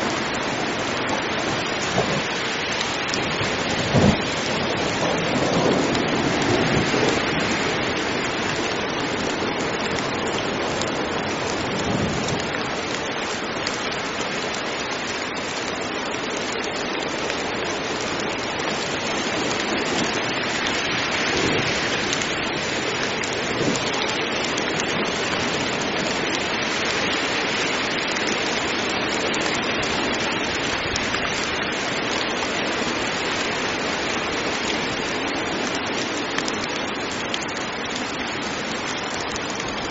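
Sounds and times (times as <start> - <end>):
heavy rain hiss: 0.0 - 39.9
low rumble of thunder: 3.2 - 7.6, 21.2 - 21.9.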